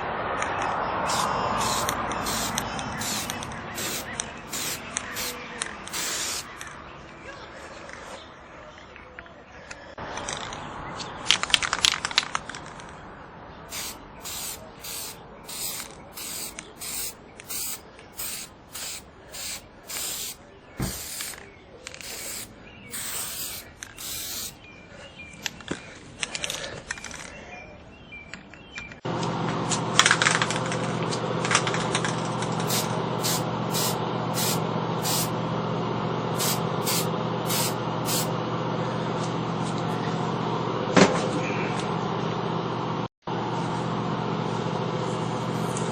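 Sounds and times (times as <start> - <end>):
aerosol spray bursts: 1.1 - 6.5, 13.7 - 21.4, 22.0 - 24.6, 32.6 - 35.3, 36.4 - 38.3.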